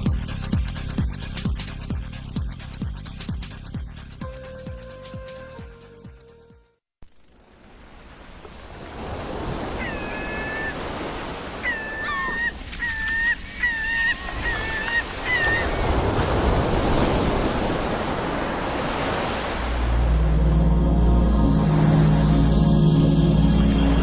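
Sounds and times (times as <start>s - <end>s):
rushing water: 7.8s - 24.0s
bird calling: 9.8s - 10.8s, 11.6s - 15.9s.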